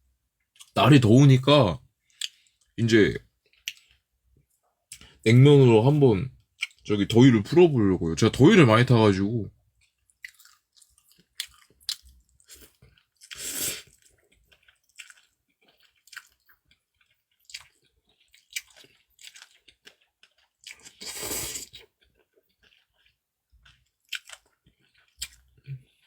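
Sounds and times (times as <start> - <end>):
chewing noodles: 9.7 - 26.0.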